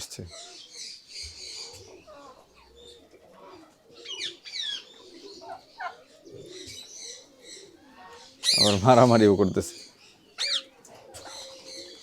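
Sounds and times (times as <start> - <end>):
birds cooing and chirping: 0.0 - 12.0
sharp high-pitched bird calls: 8.4 - 10.7.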